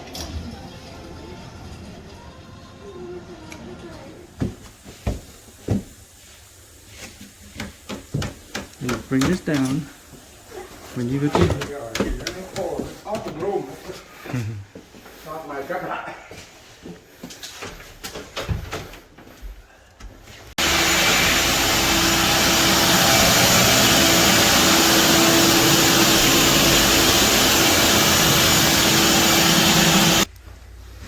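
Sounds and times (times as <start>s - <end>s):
vacuum cleaner humming: 20.6s - 30.3s.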